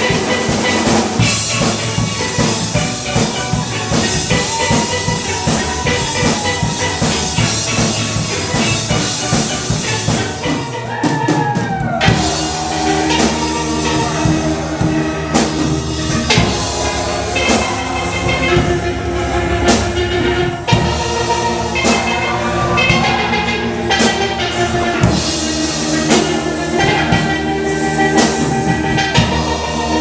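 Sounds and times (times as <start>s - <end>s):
steel pans ringing: 0.0s - 11.3s, 12.0s - 30.0s
steady drum beat: 0.0s - 30.0s.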